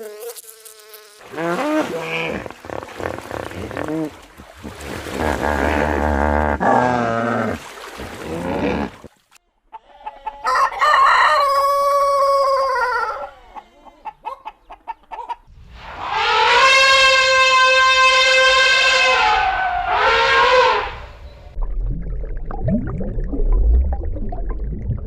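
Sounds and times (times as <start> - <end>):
hen clucks: 9.7 - 10.8, 12.6 - 15.5
rooster crowing: 10.0 - 13.6
wavering animal call: 16.0 - 21.2.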